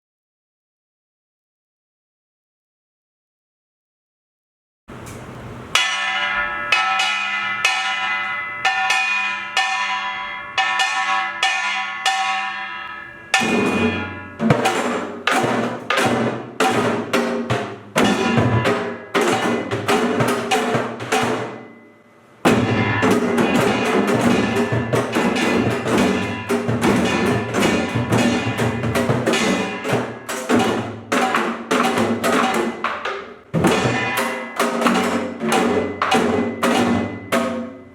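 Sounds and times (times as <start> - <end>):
small gong ringing strokes: 5.6 - 15.5, 18.0 - 30.8
drums in driving rhythm: 13.4 - 21.8, 22.5 - 37.9.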